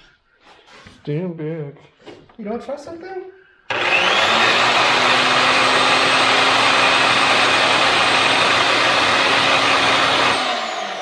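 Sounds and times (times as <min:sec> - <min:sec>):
table saw motor running: 0:03.7 - 0:11.0.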